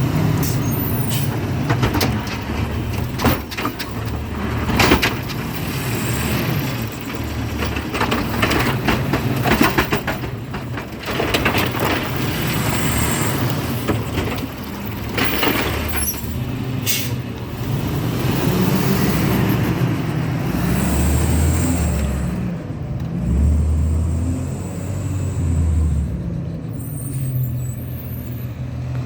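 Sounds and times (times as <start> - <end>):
metal clanks and knocks: 0.0 - 19.8
diesel engine running: 0.0 - 26.8.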